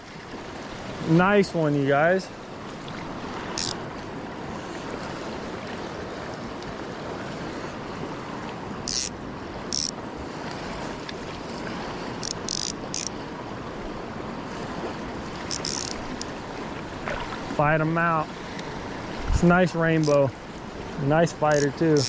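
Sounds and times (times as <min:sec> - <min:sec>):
river current rushing: 0:00.0 - 0:22.0
high-pitched zips: 0:08.9 - 0:09.1, 0:15.5 - 0:16.3.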